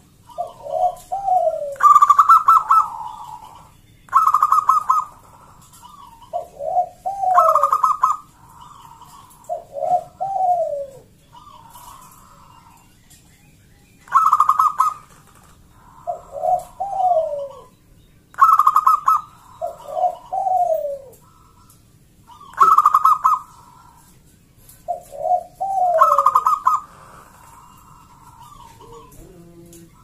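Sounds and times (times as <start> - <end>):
zebra dove cooing song: 0.0 - 13.2, 13.8 - 30.0.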